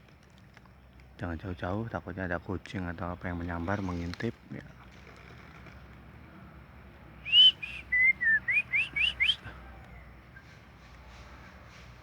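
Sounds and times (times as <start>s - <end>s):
person whistling bird call: 7.3s - 9.5s.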